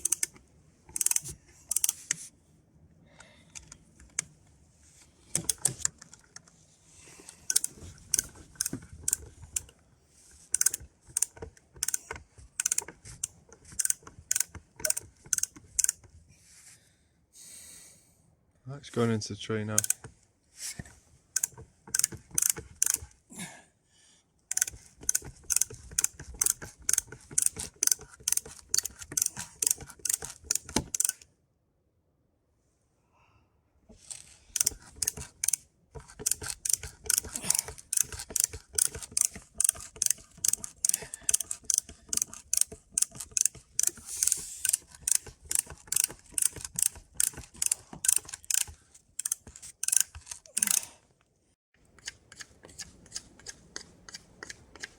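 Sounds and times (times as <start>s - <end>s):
hand brace ratcheting clicks: 0.0s - 2.2s, 5.3s - 6.4s, 7.3s - 9.8s, 10.4s - 16.1s, 19.8s - 20.2s, 21.4s - 23.2s, 24.5s - 31.3s, 34.0s - 50.9s.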